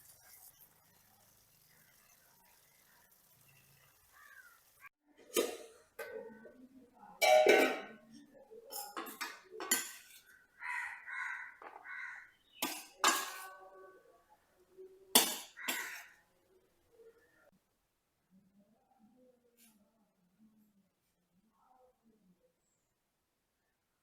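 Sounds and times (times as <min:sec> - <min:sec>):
harsh caws: 0:04.1 - 0:04.7, 0:10.6 - 0:12.4, 0:15.6 - 0:16.2
dishes clinking: 0:05.2 - 0:06.5, 0:07.2 - 0:10.4, 0:12.6 - 0:13.6, 0:15.2 - 0:16.0.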